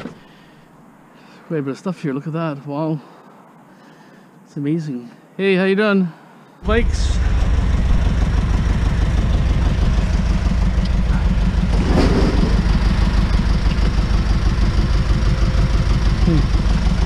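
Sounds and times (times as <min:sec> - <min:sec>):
truck engine rumbling: 0:06.6 - 0:17.0.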